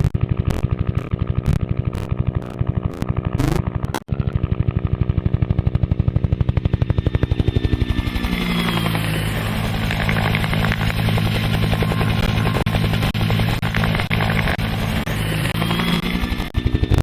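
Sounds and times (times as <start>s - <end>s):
helicopter rotor chopping: 0.0s - 17.0s.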